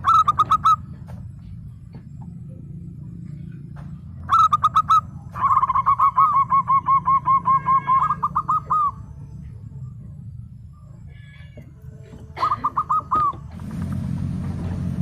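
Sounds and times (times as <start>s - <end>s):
dove cooing: 0.0s - 1.1s, 4.1s - 9.8s, 11.4s - 13.6s
low steady hum: 0.0s - 15.0s.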